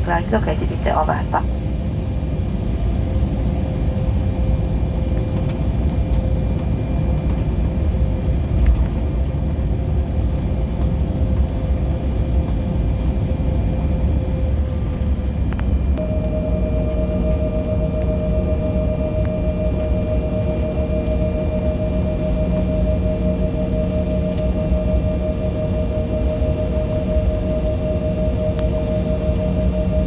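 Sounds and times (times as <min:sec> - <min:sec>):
airliner engine rumble: 0:00.0 - 0:30.0
jet engine whine: 0:00.0 - 0:30.0.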